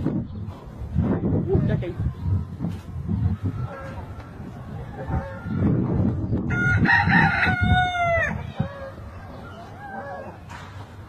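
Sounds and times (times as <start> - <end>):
rooster crowing: 6.5 - 10.4.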